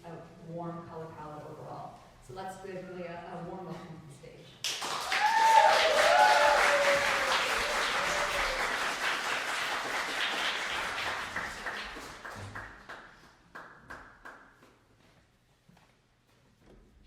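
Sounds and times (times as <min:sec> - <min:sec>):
audience applauding: 0:04.6 - 0:14.6.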